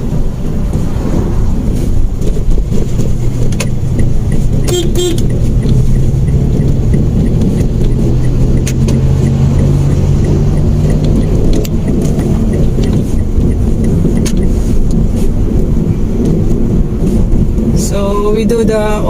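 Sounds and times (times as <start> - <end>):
car engine hum: 0.0 - 19.0
road rumble: 0.0 - 19.0
sharp clicks: 2.3 - 15.0.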